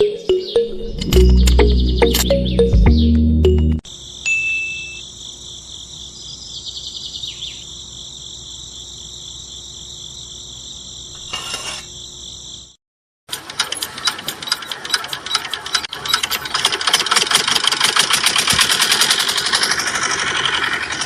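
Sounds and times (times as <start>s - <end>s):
crickets chirping: 3.8s - 12.8s
rapid mechanical rattle: 13.3s - 21.0s.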